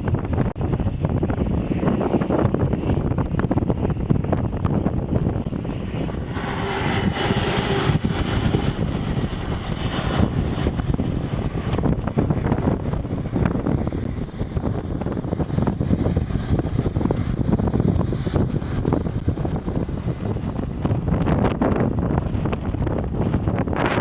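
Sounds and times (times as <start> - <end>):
jet airliner engines rumbling: 0.0 - 24.0
wind buffeting microphone: 0.0 - 24.0.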